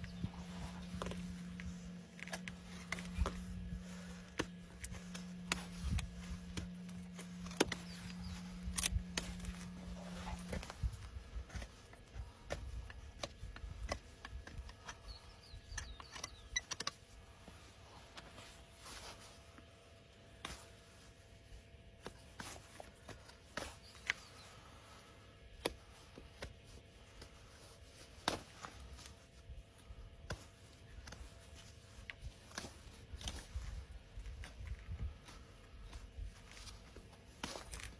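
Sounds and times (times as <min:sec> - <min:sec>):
hoof tools clicking and scraping: 0:00.0 - 0:19.7, 0:22.0 - 0:37.9
low steady hum: 0:00.0 - 0:37.9.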